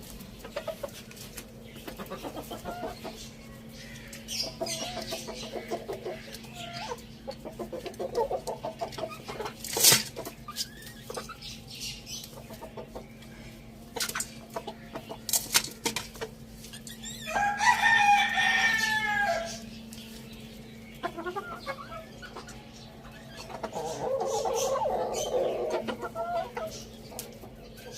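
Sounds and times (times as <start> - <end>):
chickens clucking and pecking: 0.0 - 27.9
steady low hum: 0.0 - 27.9
rooster crowing: 17.2 - 19.7.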